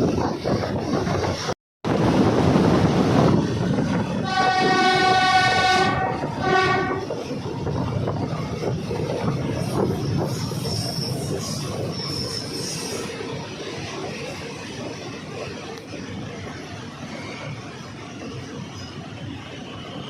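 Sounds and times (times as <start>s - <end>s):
train rumbling: 0.0s - 20.0s
locomotive horn blasts: 4.2s - 7.1s.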